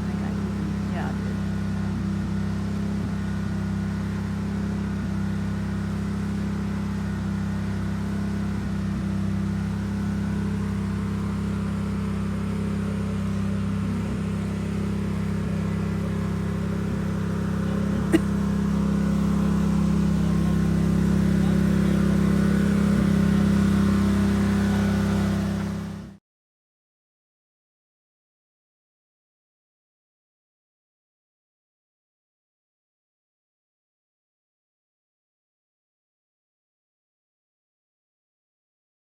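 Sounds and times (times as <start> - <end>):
engine humming: 0.0 - 26.2.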